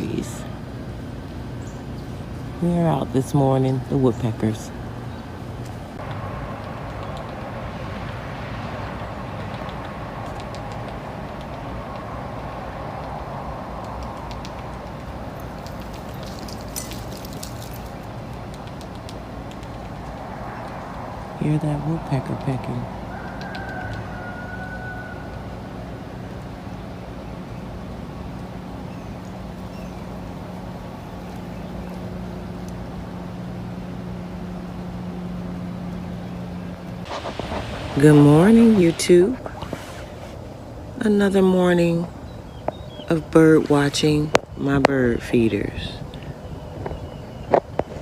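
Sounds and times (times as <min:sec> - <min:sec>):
distant traffic hum: 0:00.0 - 0:48.0
woodpecker tapping on tree: 0:06.0 - 0:07.6, 0:08.8 - 0:12.1, 0:13.8 - 0:21.0, 0:23.1 - 0:24.8.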